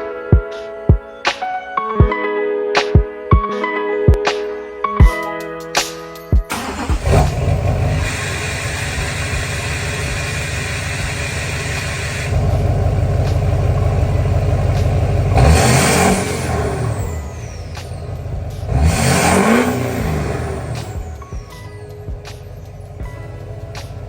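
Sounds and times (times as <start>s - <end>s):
diesel engine rumbling: 6.5s - 24.0s.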